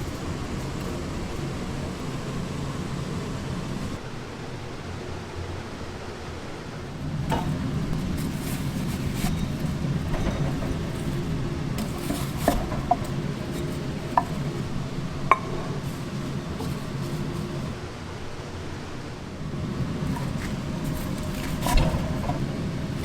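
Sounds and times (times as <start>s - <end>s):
steady low hum: 0.0s - 23.0s
dishes and cutlery clinking: 9.0s - 17.8s.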